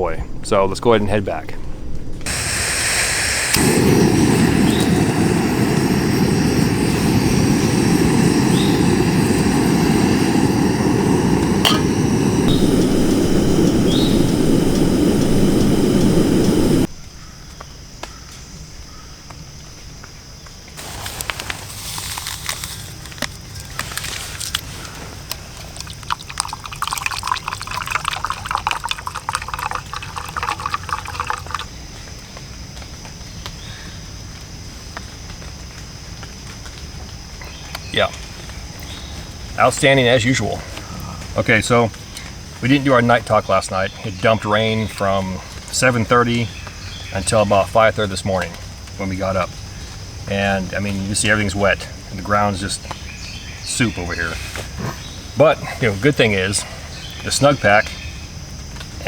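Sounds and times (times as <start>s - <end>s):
loud low rushing noise: 2.3s - 16.9s.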